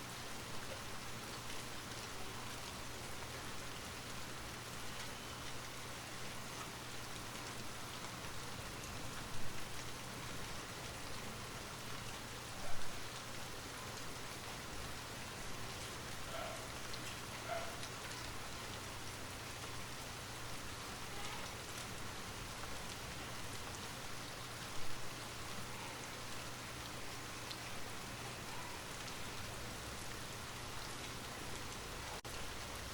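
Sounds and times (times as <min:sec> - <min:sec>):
light rain falling: 0:00.0 - 0:32.9
raindrops tapping on a surface: 0:06.4 - 0:20.0.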